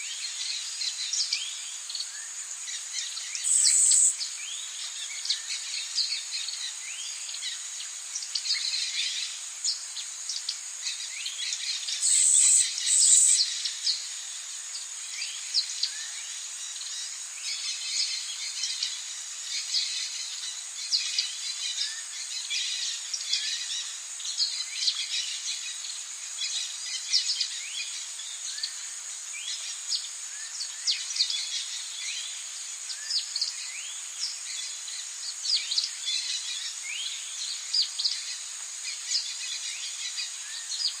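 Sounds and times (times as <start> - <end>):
high-pitched insect drone: 2.1 - 4.2, 11.4 - 15.2
birds chirping and calling: 3.1 - 4.2, 11.9 - 13.7
loud high bird calls: 3.4 - 4.2, 12.0 - 13.5.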